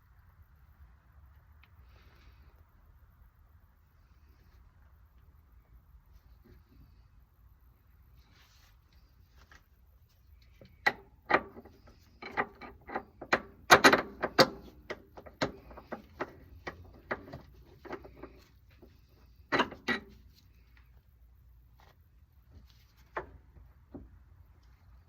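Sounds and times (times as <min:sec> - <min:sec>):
metal tools knocking and clanking: 0:10.6 - 0:18.3.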